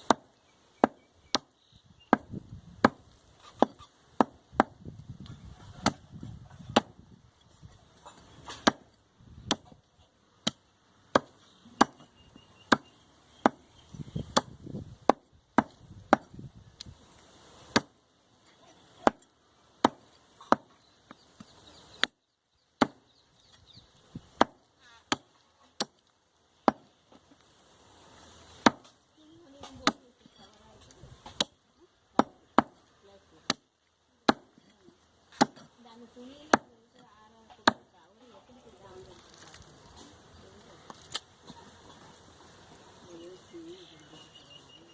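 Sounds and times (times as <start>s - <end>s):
cleaver chopping meat on wood: 0.0s - 1.5s, 2.1s - 4.9s, 5.8s - 6.0s, 6.7s - 7.0s, 8.5s - 9.8s, 10.4s - 12.1s, 14.3s - 16.4s, 17.7s - 17.9s, 19.8s - 20.7s, 24.4s - 26.0s, 31.2s - 32.8s, 34.3s - 34.6s, 35.3s - 35.7s, 37.6s - 37.8s.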